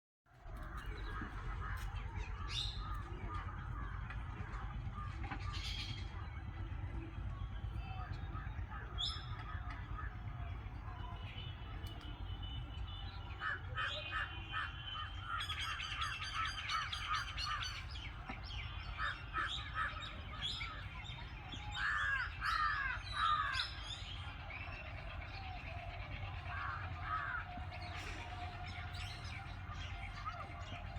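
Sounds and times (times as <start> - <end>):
low steady rumble: 0.4 - 13.3.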